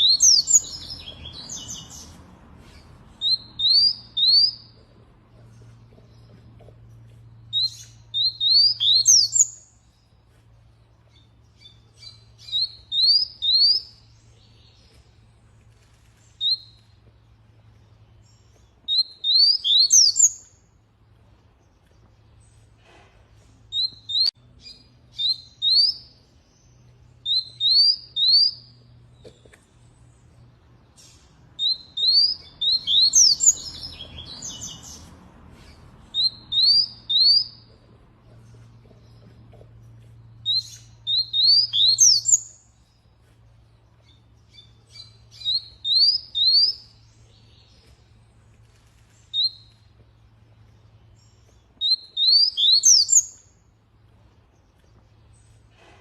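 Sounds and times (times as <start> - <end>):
canary chirping: 0.0 - 4.8, 5.5 - 9.9, 11.1 - 14.8, 18.2 - 20.6, 23.7 - 26.2, 27.2 - 28.9, 30.9 - 35.1, 35.7 - 37.8, 40.2 - 43.0, 44.0 - 47.8, 51.2 - 53.5.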